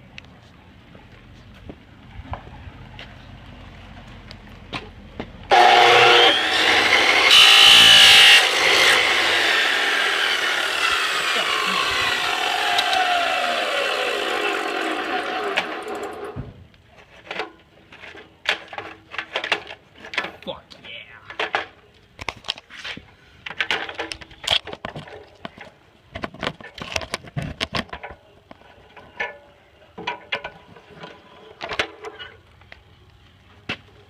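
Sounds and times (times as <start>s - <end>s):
chop saw cutting plastic: 5.5s - 16.4s
saw motor whine spinning down: 5.5s - 16.4s.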